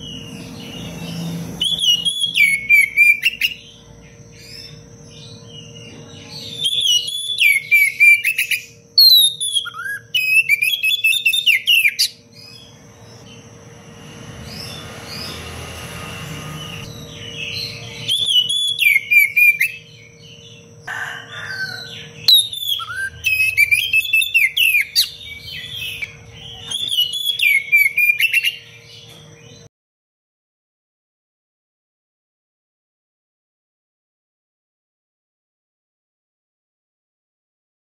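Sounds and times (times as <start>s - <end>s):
bird singing whistled phrases: 1.6s - 3.6s, 6.5s - 12.6s, 16.3s - 19.9s, 22.3s - 28.7s.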